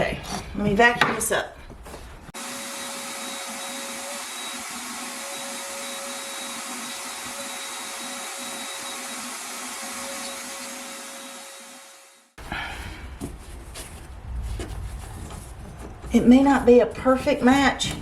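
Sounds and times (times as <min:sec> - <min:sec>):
vacuum cleaner running: 0:02.4 - 0:12.4.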